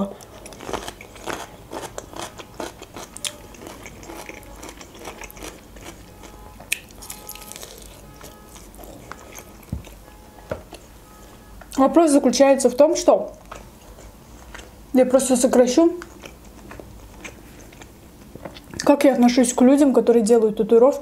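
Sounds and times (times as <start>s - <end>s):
person chewing wetly: 0.1s - 10.9s, 13.3s - 14.8s, 16.0s - 18.9s.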